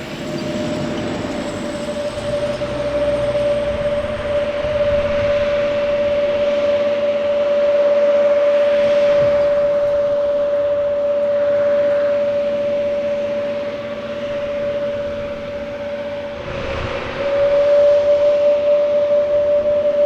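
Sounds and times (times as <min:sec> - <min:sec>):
jet engine whine and roar: 0:00.0 - 0:20.0
short low rumble: 0:16.1 - 0:19.0.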